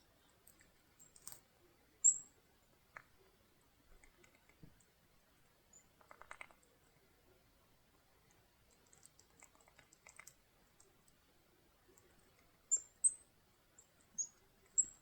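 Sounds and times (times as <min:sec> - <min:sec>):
birds pecking taps: 0:06.0 - 0:06.6.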